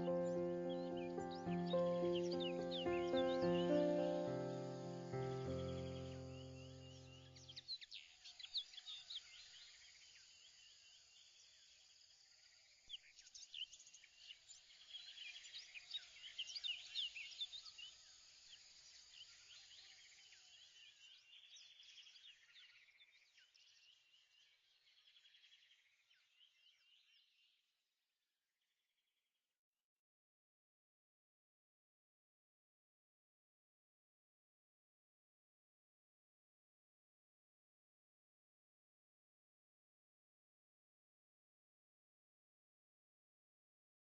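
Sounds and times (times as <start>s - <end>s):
birds chirping: 0.0s - 8.0s.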